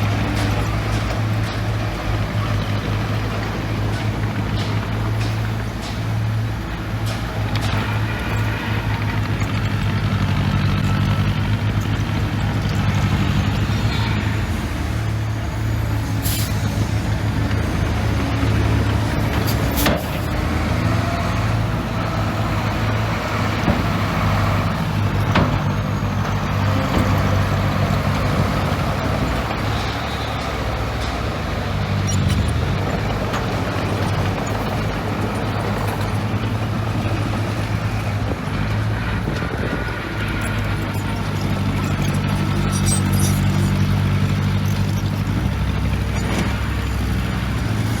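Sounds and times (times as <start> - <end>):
heavy diesel machinery running: 0.0 - 48.0.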